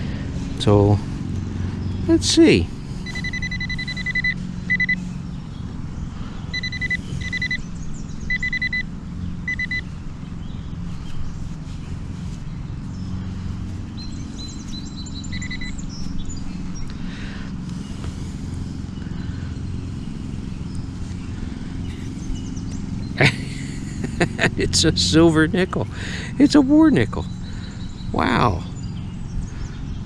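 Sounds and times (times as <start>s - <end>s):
steady low hum: 0.0s - 30.0s
metal detector beeping: 3.0s - 5.0s, 6.5s - 9.9s, 15.3s - 15.8s.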